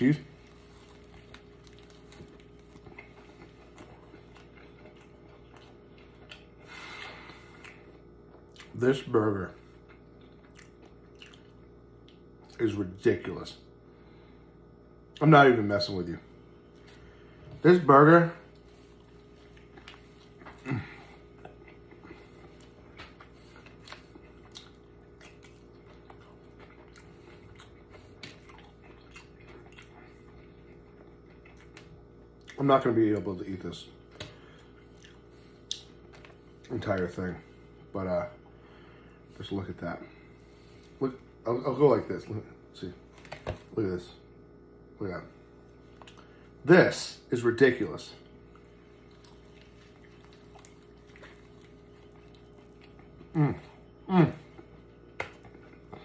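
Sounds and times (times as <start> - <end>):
low steady hum: 0.0 - 56.0
chewing burger: 0.2 - 9.0, 9.6 - 12.7, 18.4 - 33.3, 33.9 - 37.8, 45.6 - 46.6, 48.2 - 56.0.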